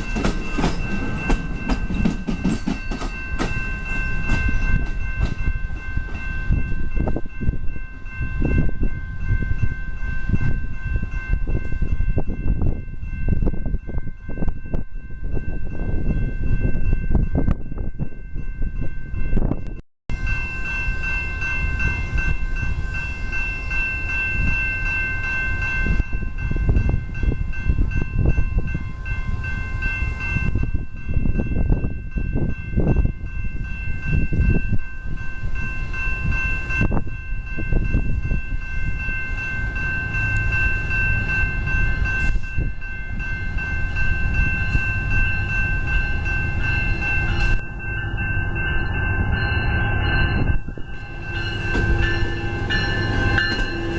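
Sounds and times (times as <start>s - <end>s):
train rumbling past: 0.0s - 53.9s
steady high-pitched tones: 33.2s - 53.9s.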